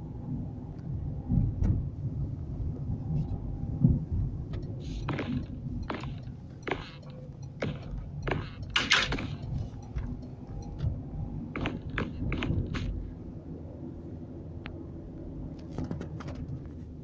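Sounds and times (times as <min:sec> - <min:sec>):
steady low rumble: 0:00.0 - 0:15.6
irregular clicks and knocks: 0:04.5 - 0:10.9, 0:11.5 - 0:13.0.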